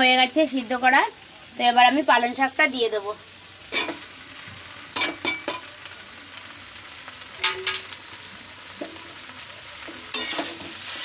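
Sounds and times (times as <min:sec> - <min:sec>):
food sizzling in hot oil: 0:00.0 - 0:11.0
utensil clinking against pan: 0:07.4 - 0:07.9.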